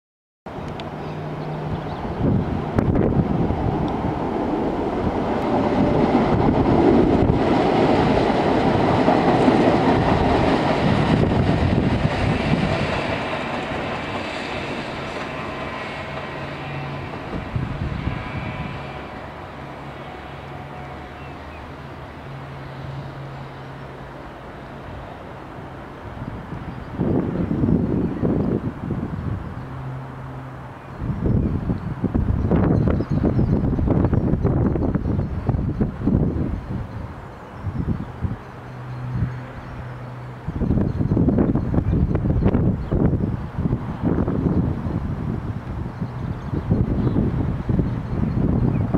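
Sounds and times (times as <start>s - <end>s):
train rail running noise: 0.5s - 48.9s
faint high squeal: 14.3s - 21.7s.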